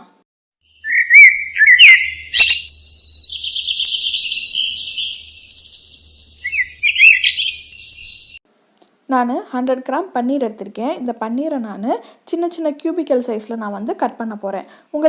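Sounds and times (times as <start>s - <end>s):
bird buzzy trill: 0.7s - 8.4s
bird whistled chirps: 0.7s - 8.4s.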